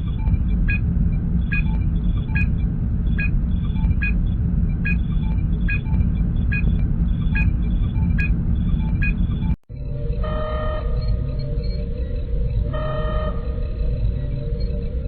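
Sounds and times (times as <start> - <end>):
electronic computer beep: 0.0 - 9.6
low engine rumble: 0.0 - 15.0.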